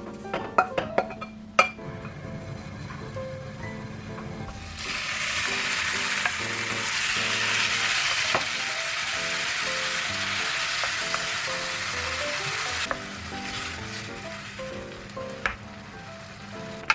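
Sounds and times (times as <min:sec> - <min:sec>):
food sizzling in a pan: 0:04.6 - 0:16.9.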